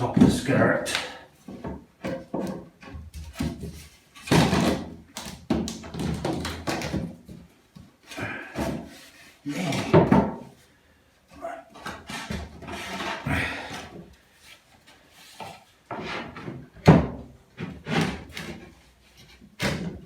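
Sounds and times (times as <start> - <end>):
wooden board knocks and thumps: 1.4 - 7.9, 9.7 - 10.6, 15.4 - 18.7
wood scraping: 11.7 - 16.7, 17.5 - 20.0.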